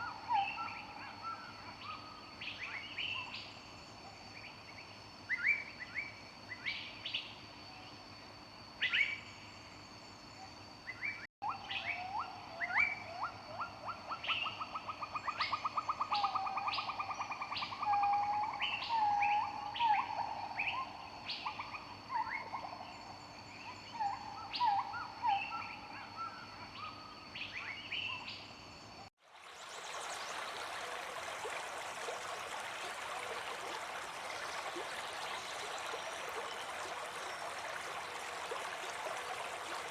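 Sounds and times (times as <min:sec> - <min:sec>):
stream rushing: 0:29.2 - 0:39.9.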